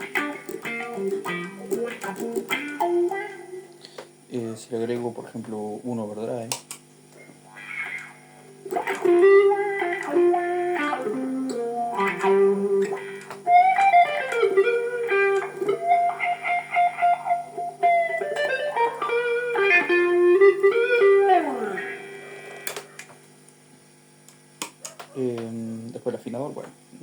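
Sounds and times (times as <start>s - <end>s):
overdriven electric guitar lead: 0.0s - 4.3s, 7.2s - 23.6s.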